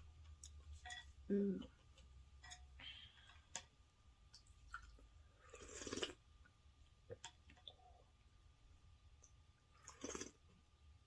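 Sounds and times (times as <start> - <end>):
chewing food: 9.2 - 10.4.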